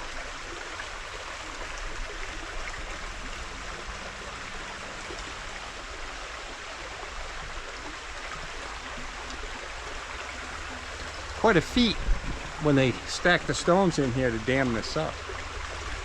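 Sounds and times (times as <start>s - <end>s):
river water rushing over rocks: 0.0s - 16.0s.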